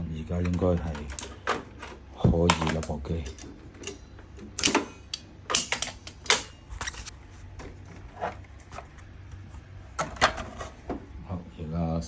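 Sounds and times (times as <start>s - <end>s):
plastic parts and tools clicking: 0.3s - 7.1s.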